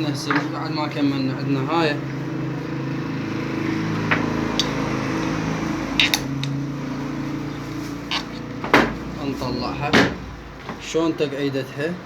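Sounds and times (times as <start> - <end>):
mechanical hum: 0.0 - 12.0
metal parts clicking: 6.0 - 6.6.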